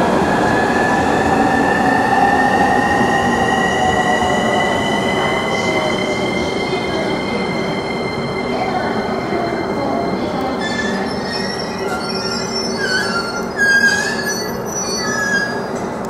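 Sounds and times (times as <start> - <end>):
train rumble and whine: 0.0 - 16.0
high brake squeals: 10.6 - 15.8.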